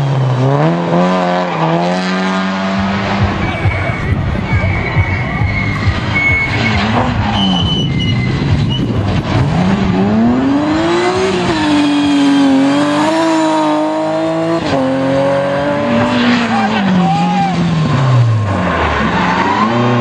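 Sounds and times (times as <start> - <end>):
rally car engine accelerating: 0.0 - 20.0.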